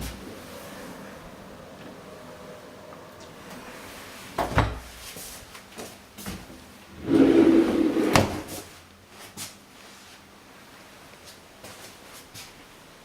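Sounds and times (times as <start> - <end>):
door sliding: 7.0 - 8.6.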